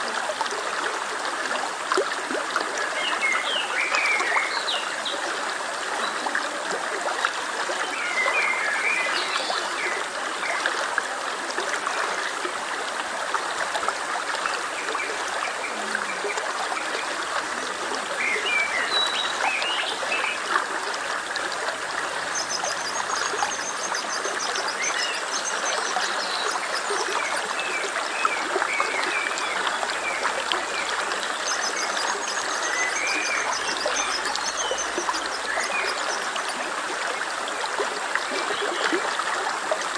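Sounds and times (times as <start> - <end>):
stream flowing: 0.0 - 39.9
birds chirping: 28.8 - 36.6.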